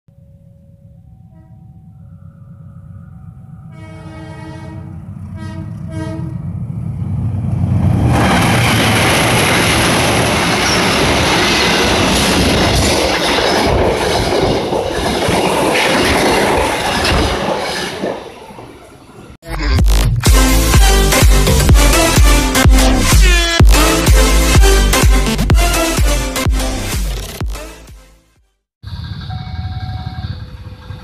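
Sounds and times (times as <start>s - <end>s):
train horn blasts: 1.2s - 2.0s, 3.6s - 6.5s
train wheels rushing on rails: 5.1s - 19.4s.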